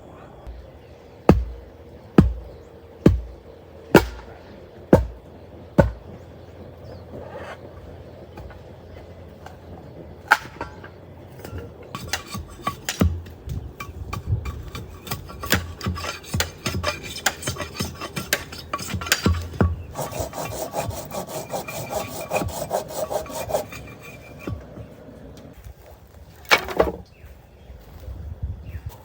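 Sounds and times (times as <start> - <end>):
hand tool rasping on wood: 12.0 - 24.7.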